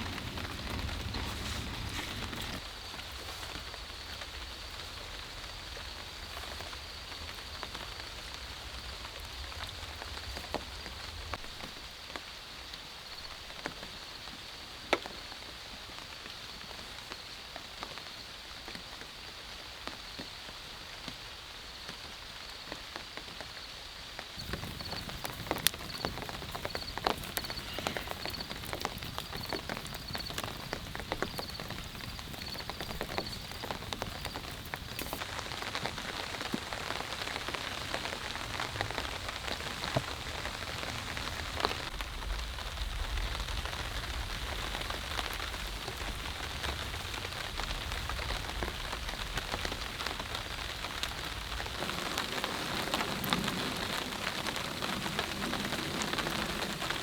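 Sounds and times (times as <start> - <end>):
low rumble: 0.0 - 2.6
heavy rain falling: 0.0 - 14.1, 24.3 - 57.0.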